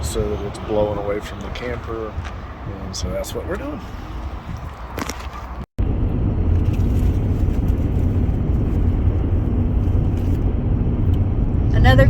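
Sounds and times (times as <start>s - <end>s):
diesel truck engine droning: 5.8s - 12.0s.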